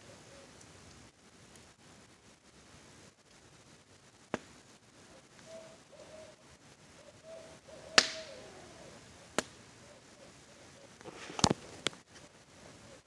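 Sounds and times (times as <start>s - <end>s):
faint owl hoots: 0.0s - 0.8s, 5.0s - 13.0s
campfire crackling: 0.0s - 13.0s
wood popping: 4.2s - 5.5s, 8.0s - 8.4s, 9.3s - 9.6s, 11.0s - 12.2s.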